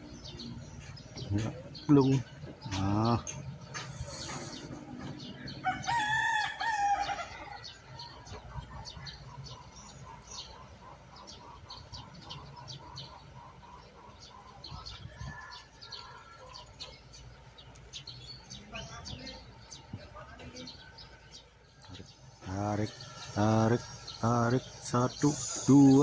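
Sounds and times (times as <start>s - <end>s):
faint chirps and ticks: 7.8s - 26.0s.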